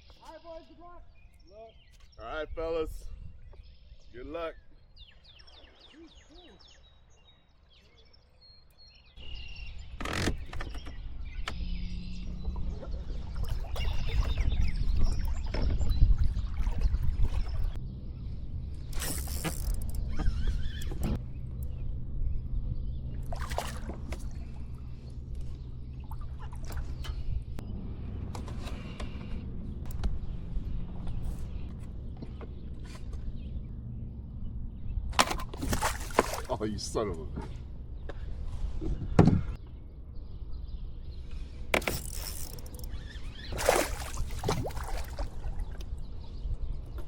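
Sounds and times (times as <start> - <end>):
steady low rumble: 11.1 - 20.2, 20.9 - 35.2
kayak paddle splashing water: 12.4 - 17.8, 23.2 - 24.9, 35.2 - 36.6, 41.8 - 46.0.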